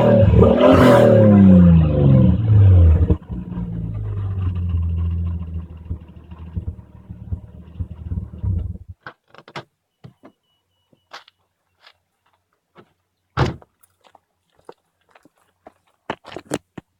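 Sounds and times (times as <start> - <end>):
vehicle engine running: 0.0 - 9.0
loud thump: 13.4 - 13.6.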